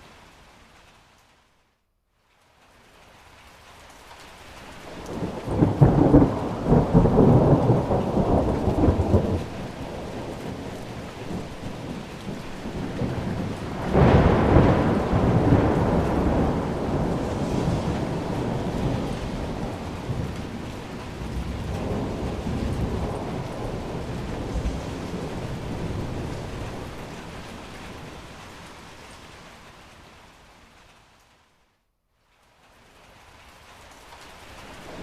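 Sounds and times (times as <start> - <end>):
steady rain: 0.0 - 35.0
thunder rumbling: 4.9 - 29.3.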